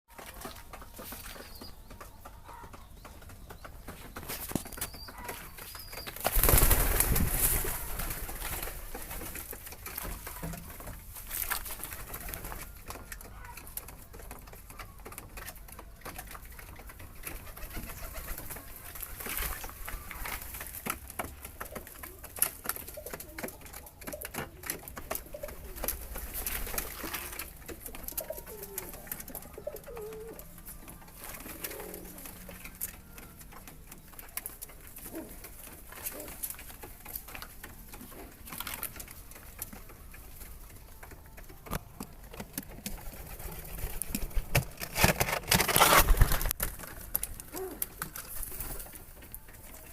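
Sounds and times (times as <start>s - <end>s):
pigeons cooing: 21.6s - 40.7s, 47.4s - 49.3s.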